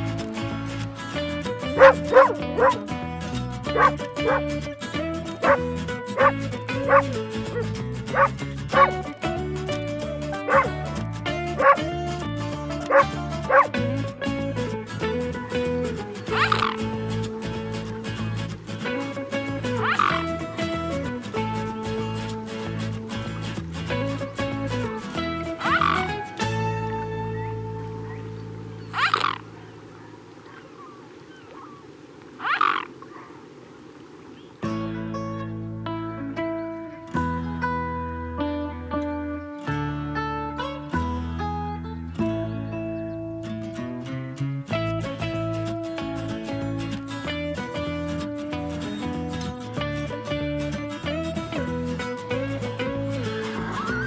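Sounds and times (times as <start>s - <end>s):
background music: 0.0s - 29.4s, 34.6s - 54.0s
animal calling harshly: 1.8s - 2.8s, 3.7s - 4.5s, 5.4s - 5.6s, 6.2s - 9.0s, 10.4s - 10.8s, 11.6s - 11.8s, 12.8s - 13.8s, 16.3s - 16.9s, 19.8s - 20.3s, 25.6s - 26.2s, 28.1s - 34.6s
dog barking in sharp yips: 1.8s - 2.8s, 3.8s - 4.4s, 6.2s - 8.9s, 10.5s - 10.7s, 11.6s - 11.8s, 12.9s - 13.7s, 32.4s - 33.4s
low steady hiss: 26.7s - 34.8s.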